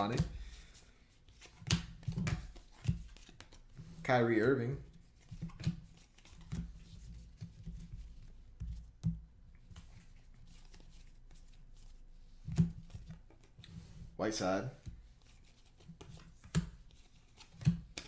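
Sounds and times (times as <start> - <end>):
trading cards rustling and ticking: 0.0 - 3.7.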